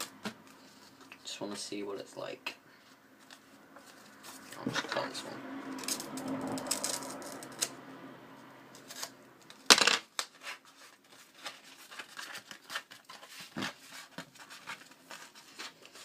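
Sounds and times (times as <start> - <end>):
packaging clicks and rustles: 8.9 - 16.0.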